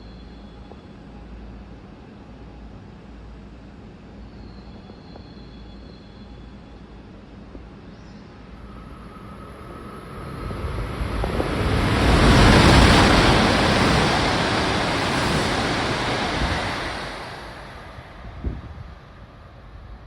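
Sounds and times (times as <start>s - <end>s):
high-speed train rushing past: 7.0s - 20.0s.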